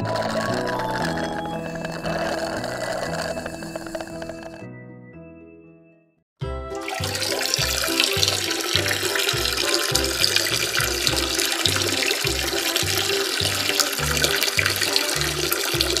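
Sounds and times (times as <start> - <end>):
music with bouncing bass line: 6.4 - 16.0.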